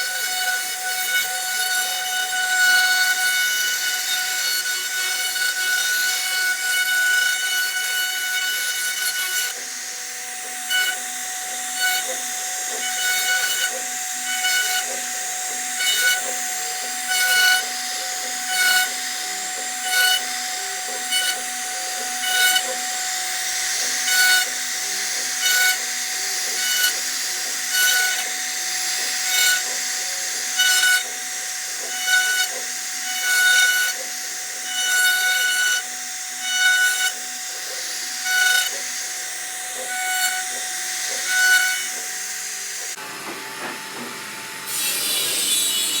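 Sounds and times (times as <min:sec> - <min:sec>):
cnc router cutting wood: 0:00.0 - 0:46.0.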